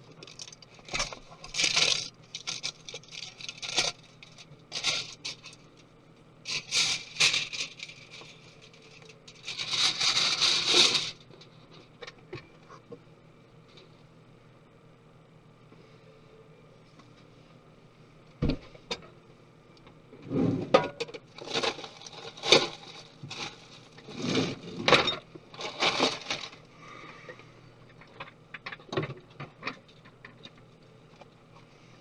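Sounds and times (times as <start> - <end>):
parts scraping and rustling: 0.2 - 5.6, 6.5 - 11.9, 21.4 - 28.4.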